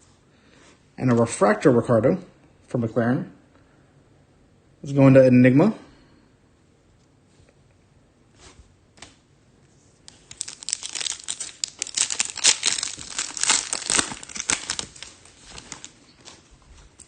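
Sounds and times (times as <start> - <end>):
foil wrapper crinkling: 10.1 - 17.0.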